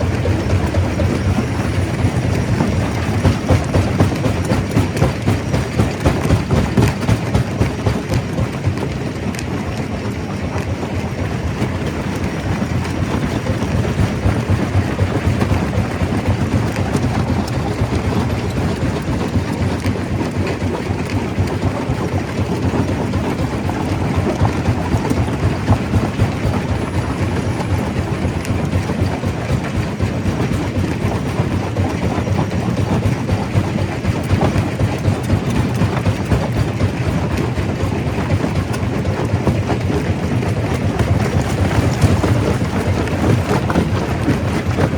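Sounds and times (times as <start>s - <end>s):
stone crusher rumbling: 39.4s - 44.9s.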